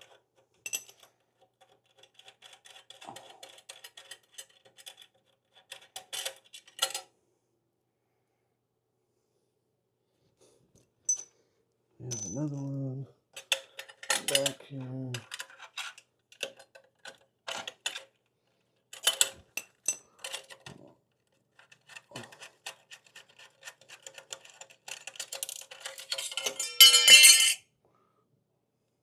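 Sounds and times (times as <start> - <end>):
metal tools clinking: 11.1 - 11.3, 12.0 - 12.6, 13.4 - 15.4, 25.4 - 27.6.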